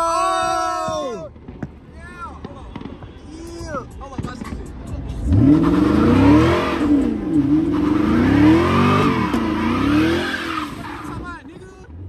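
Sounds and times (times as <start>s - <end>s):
car engine revving: 4.4s - 11.3s.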